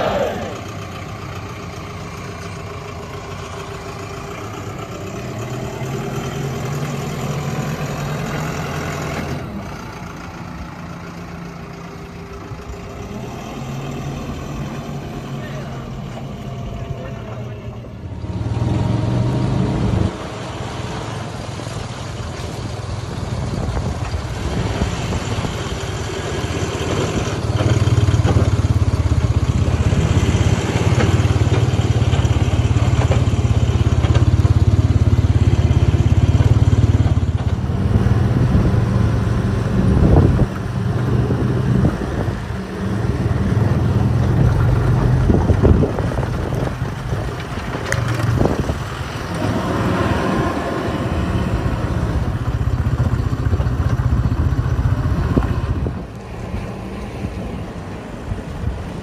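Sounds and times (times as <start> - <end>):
heavy machinery diesel engine: 0.0 - 59.0
engine knocks: 22.3 - 37.8, 43.5 - 49.8, 51.6 - 56.1.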